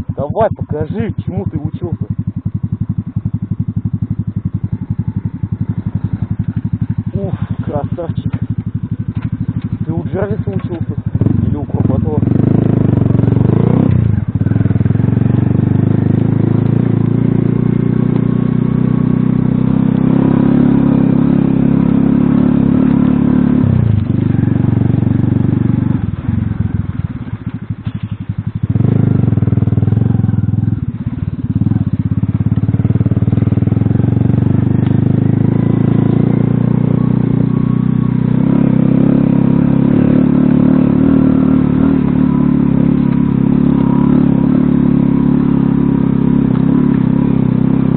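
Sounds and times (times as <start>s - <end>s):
moped engine running: 0.0s - 47.9s.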